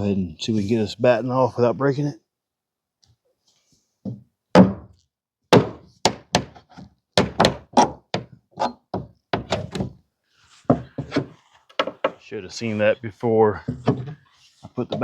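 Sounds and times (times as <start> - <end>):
knocks on wooden batten: 4.1 - 10.0, 10.7 - 12.2.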